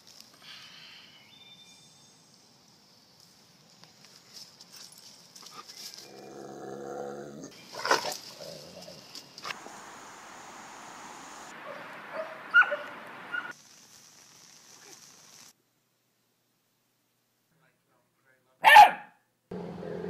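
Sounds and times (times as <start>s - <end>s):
dog growling: 6.1s - 9.0s.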